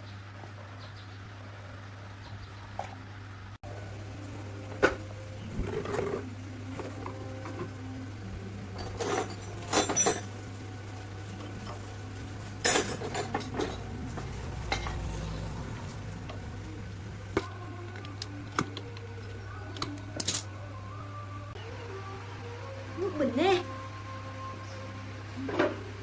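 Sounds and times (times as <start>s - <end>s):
steady low hum: 0.0s - 26.0s
metal tools clinking: 8.8s - 10.3s, 12.6s - 15.2s, 20.1s - 20.5s.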